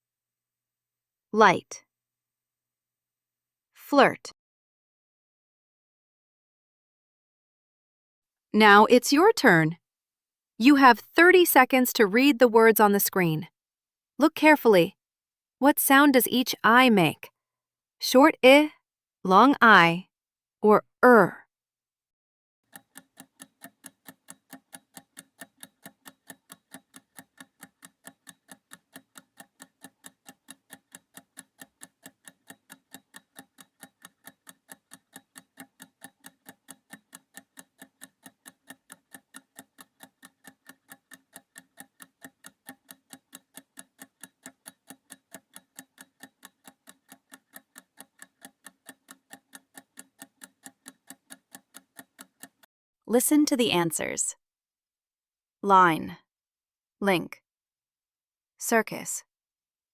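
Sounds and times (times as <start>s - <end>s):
clock ticking: 10.6s - 13.5s, 15.6s - 17.3s, 22.7s - 53.6s.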